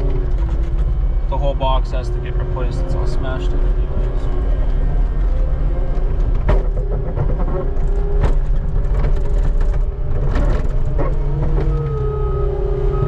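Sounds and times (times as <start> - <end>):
skid steer engine running: 0.0 - 13.0
sharp knocks and clanks: 6.3 - 11.8.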